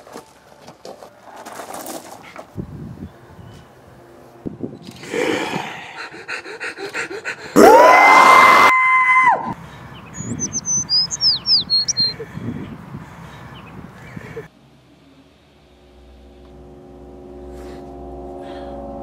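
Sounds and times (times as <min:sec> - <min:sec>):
birds chirping: 0:09.6 - 0:14.5
steady whistling tone: 0:10.1 - 0:12.2.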